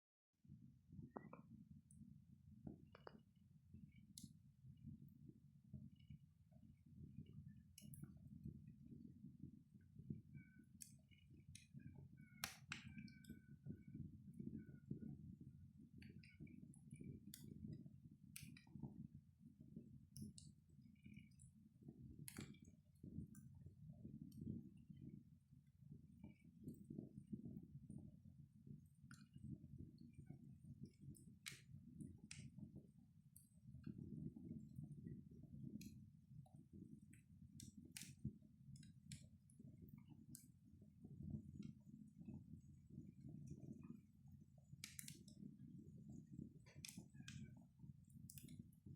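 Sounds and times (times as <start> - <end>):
low fire rumble: 0.5 - 48.9
wood fire crackling: 29.3 - 40.4, 41.0 - 48.8.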